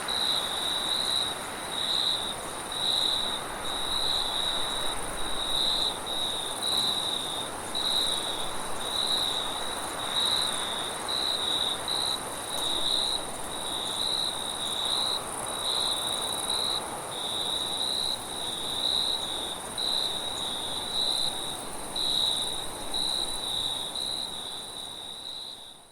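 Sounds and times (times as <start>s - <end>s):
crickets chirping: 0.0s - 25.9s
soft wind hiss: 0.0s - 25.9s.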